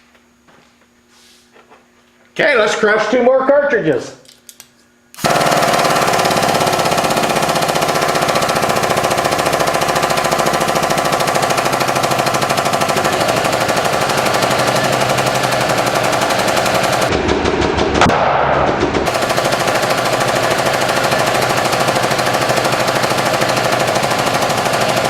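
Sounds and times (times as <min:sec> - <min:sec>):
hydraulic press pump chattering: 0:05.2 - 0:17.1, 0:19.1 - 0:25.0.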